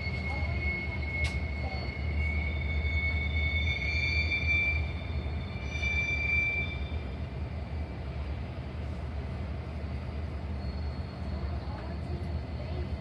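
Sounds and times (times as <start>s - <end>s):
train wheels squealing: 0.0s - 7.6s, 9.8s - 13.0s
train rumbling on rails: 0.0s - 13.0s.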